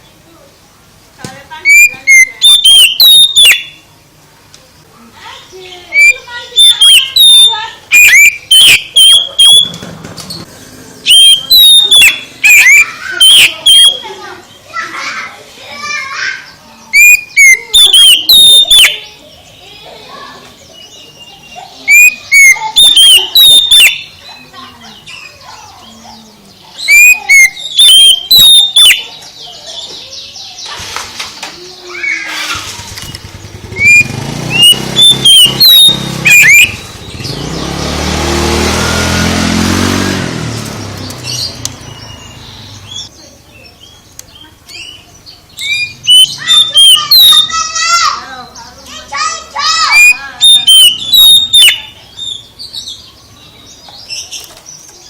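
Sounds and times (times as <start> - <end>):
bird whistled chirps: 1.6 - 3.8, 5.9 - 9.8, 11.0 - 14.2, 16.8 - 19.2, 20.8 - 24.4, 26.8 - 29.2, 33.4 - 37.7, 44.7 - 48.0, 49.7 - 53.0.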